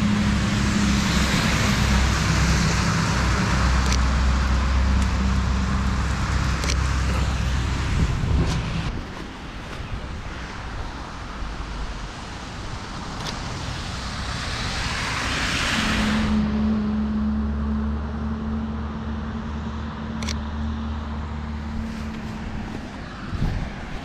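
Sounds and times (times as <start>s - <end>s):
tyres hissing on wet road: 0.0s - 17.3s
low engine hum: 0.0s - 24.0s.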